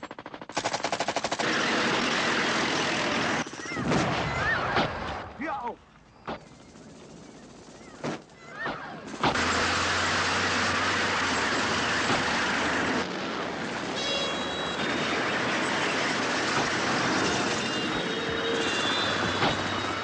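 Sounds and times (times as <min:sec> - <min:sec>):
faint squeals: 0:17.5 - 0:20.0.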